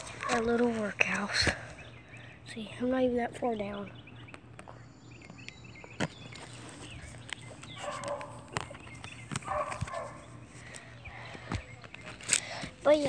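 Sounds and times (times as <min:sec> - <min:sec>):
dog barking: 0:07.8 - 0:08.4, 0:09.4 - 0:10.3.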